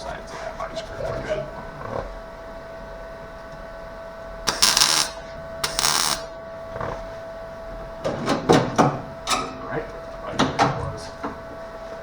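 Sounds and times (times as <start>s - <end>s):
steady hum: 0.0s - 12.0s
welding crackling buzz: 4.4s - 7.1s.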